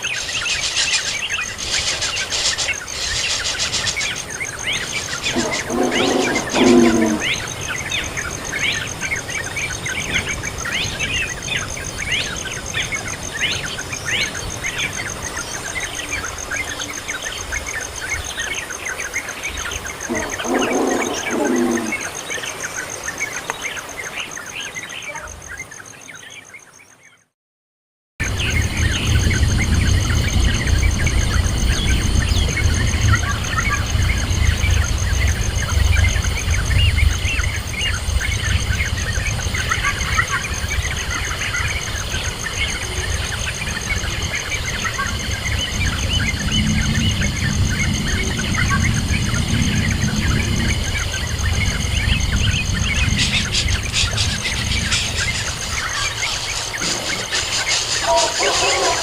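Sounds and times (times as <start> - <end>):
birds chirping: 0.0 - 27.2, 28.2 - 59.0
heavy low rumble: 28.2 - 37.7, 45.5 - 55.8.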